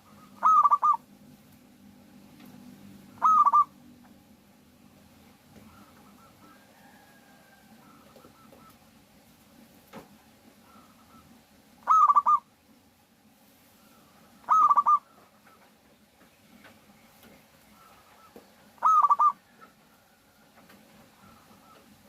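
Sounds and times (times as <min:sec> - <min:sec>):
dove cooing: 0:00.0 - 0:01.1, 0:03.1 - 0:03.9, 0:05.5 - 0:09.1, 0:10.6 - 0:12.5, 0:13.8 - 0:15.7, 0:17.7 - 0:22.0.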